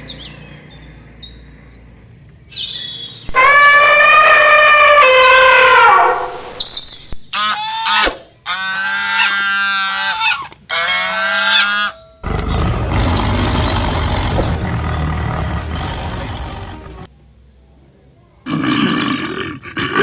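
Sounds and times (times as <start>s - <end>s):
animal calls: 3.3s - 6.7s, 7.4s - 17.1s
rough noisy sound: 12.2s - 17.1s.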